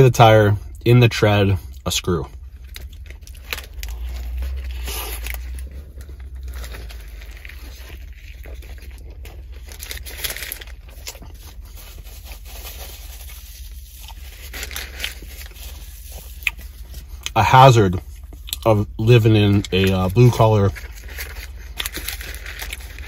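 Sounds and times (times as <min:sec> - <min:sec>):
close chewing: 0:01.7 - 0:12.1, 0:13.3 - 0:19.0, 0:19.6 - 0:23.0
biting into a sandwich: 0:02.6 - 0:18.7.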